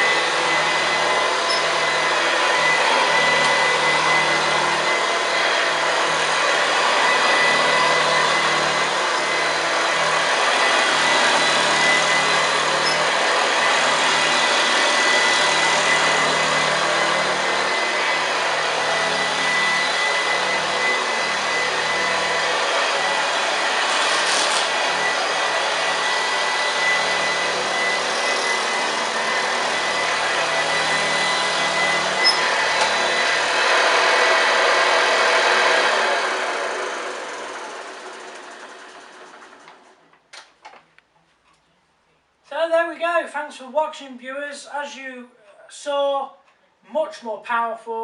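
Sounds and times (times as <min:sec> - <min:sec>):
beater bar grinding carpet: 0:00.0 - 0:39.8
vacuum cleaner running: 0:00.0 - 0:40.1.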